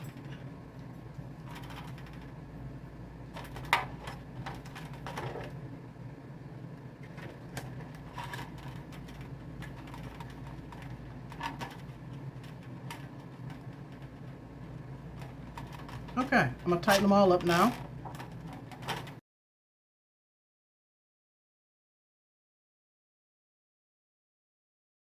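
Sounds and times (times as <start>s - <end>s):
steady low hum: 0.0s - 19.2s.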